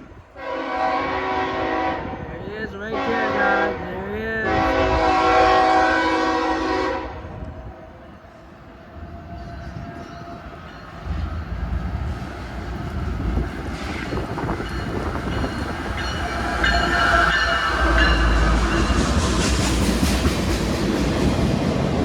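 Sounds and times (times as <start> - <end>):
diesel freight train rumbling: 0.0 - 22.0
wheels clacking on rails: 7.4 - 22.0.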